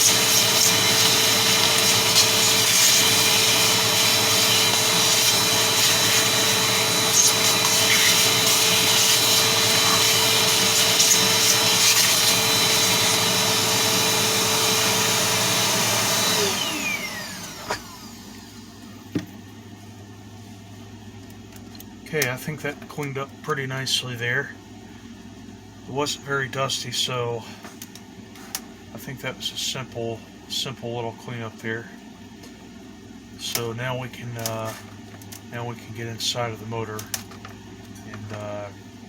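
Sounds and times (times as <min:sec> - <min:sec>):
electric cleaning motor whining: 0:00.0 - 0:18.9.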